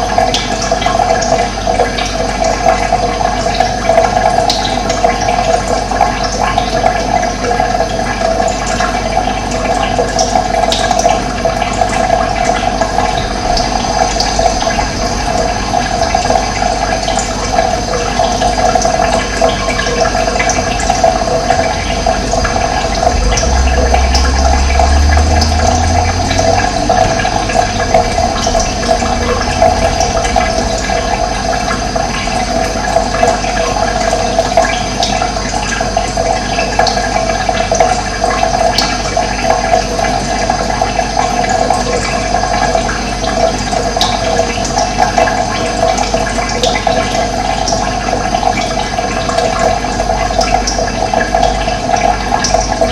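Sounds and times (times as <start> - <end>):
running water rushing: 0.0 - 52.9
low rumble: 12.1 - 18.1, 19.7 - 34.6.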